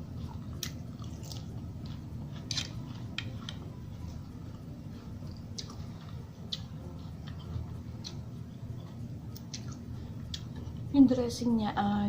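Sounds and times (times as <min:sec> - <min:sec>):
low steady hum: 0:00.0 - 0:12.0
chewing food clicks: 0:00.6 - 0:03.6, 0:05.3 - 0:08.2, 0:09.3 - 0:10.6.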